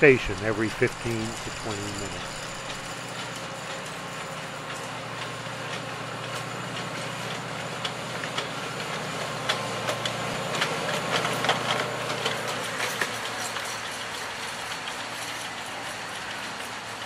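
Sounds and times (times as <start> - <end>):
sharp clicks and clacks: 0.0 - 4.0, 9.4 - 17.0
miniature train engine humming: 0.0 - 17.0.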